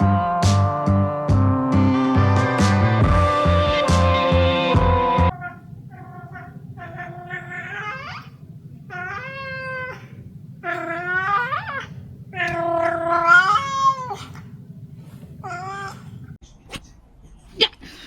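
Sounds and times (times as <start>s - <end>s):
cat meowing: 5.3s - 14.6s, 15.4s - 16.3s.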